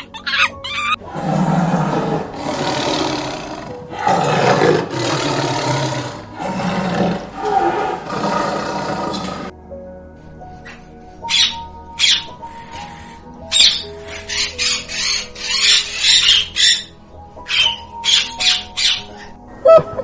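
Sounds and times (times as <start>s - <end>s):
large animal roaring: 0.3s - 9.5s.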